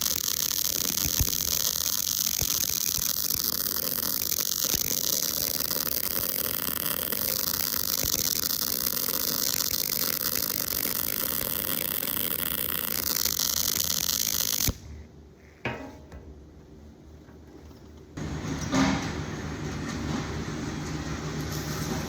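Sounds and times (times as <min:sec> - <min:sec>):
welding arc crackling: 0:00.0 - 0:14.9.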